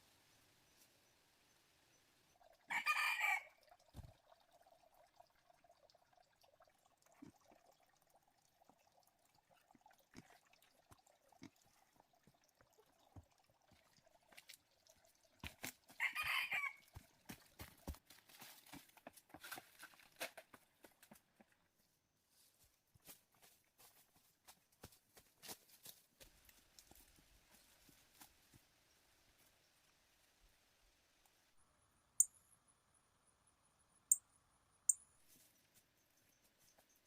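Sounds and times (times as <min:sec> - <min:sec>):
rooster crowing: 0:02.7 - 0:03.5, 0:16.0 - 0:16.8.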